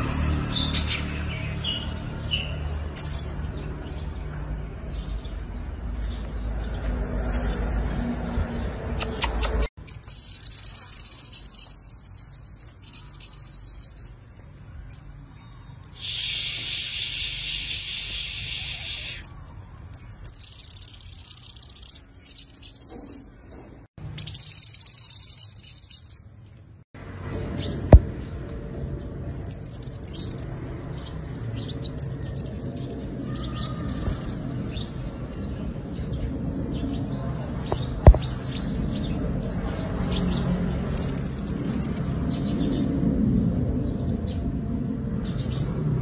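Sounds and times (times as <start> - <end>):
sunbird singing high trills: 9.0 - 14.2, 15.0 - 23.3, 24.2 - 26.3, 31.6 - 37.0.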